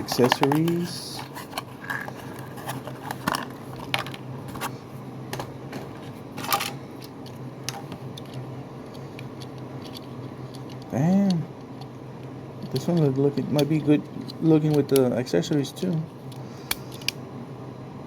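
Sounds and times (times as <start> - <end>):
steady low hum: 0.0 - 18.0
plastic parts clicking: 0.1 - 4.2.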